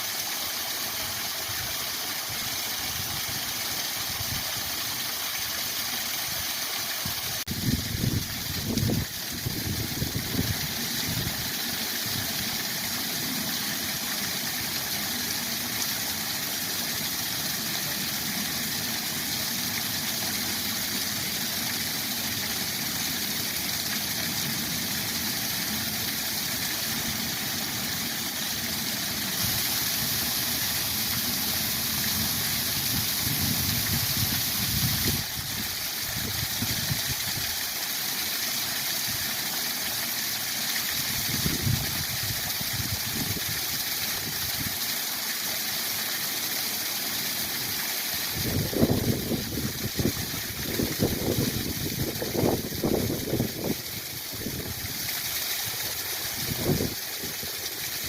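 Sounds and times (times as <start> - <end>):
waterfall rushing: 5.7 - 58.0.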